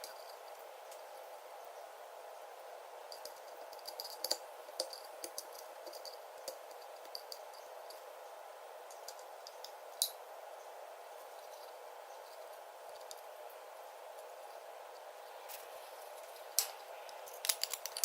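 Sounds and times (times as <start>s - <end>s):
steady background hum: 0.0s - 18.0s
light clicks and taps: 3.1s - 8.0s.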